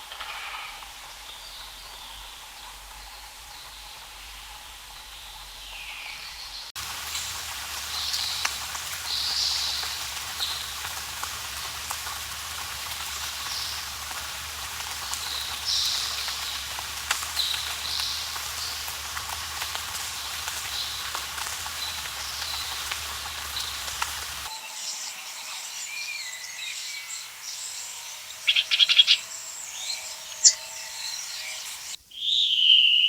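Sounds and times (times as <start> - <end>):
dripping drops: 6.8 - 24.5
rain on foliage: 6.8 - 25.9, 26.7 - 32.0.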